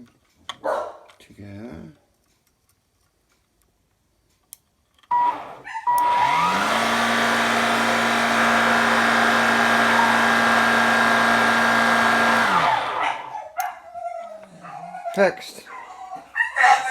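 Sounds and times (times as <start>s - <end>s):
vacuum cleaner motor whining: 5.1s - 13.3s.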